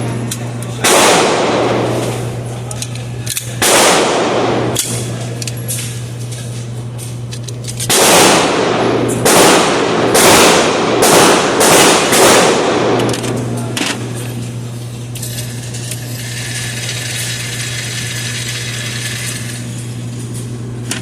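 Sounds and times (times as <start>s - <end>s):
faint sharp gunshots: 0.8s - 2.0s, 3.6s - 4.8s, 7.9s - 13.0s
gunshots with echoing tail: 0.8s - 2.0s, 3.6s - 4.8s, 7.9s - 13.1s.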